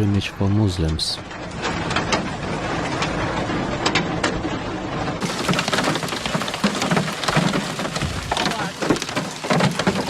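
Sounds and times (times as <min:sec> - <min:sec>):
floodwater rushing: 0:05.2 - 0:10.0.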